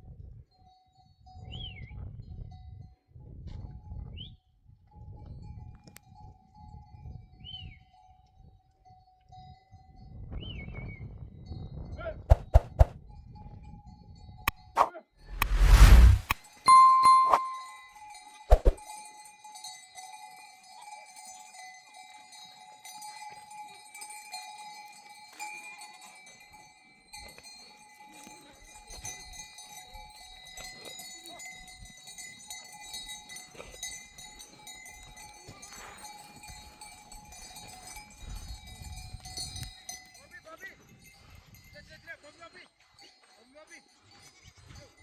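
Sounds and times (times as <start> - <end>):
livestock bells clinking: 5.4 - 10.2, 16.7 - 45.0.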